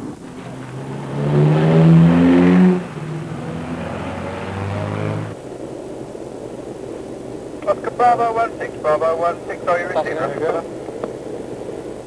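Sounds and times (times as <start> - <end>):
car engine accelerating: 0.0 - 5.4.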